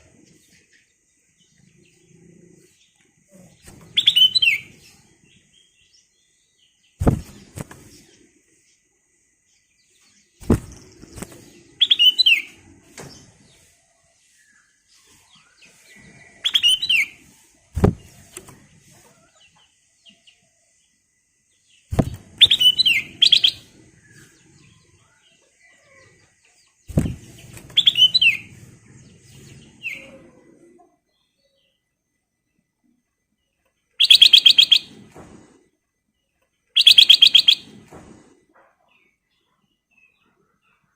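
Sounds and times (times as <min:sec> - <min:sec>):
bird whistled song: 0:03.9 - 0:04.9, 0:11.8 - 0:12.6, 0:15.4 - 0:17.3, 0:21.9 - 0:24.8, 0:26.9 - 0:28.6, 0:34.0 - 0:35.0, 0:36.7 - 0:37.8.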